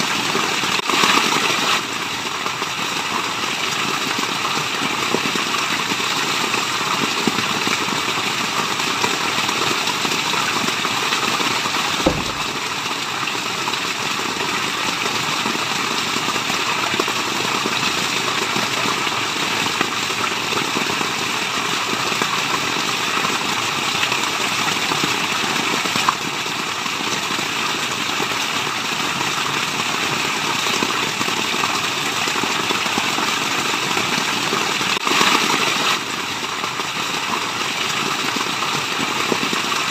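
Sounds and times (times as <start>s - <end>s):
waterfall rushing: 9.8s - 13.8s
soft knock: 12.0s - 12.6s.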